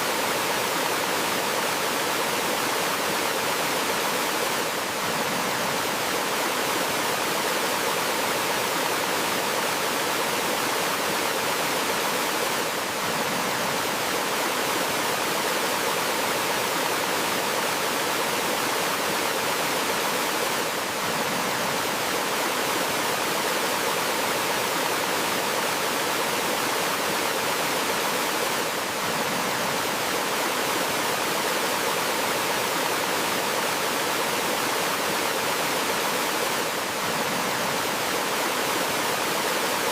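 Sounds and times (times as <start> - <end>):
waterfall rushing over rocks: 0.0 - 39.9.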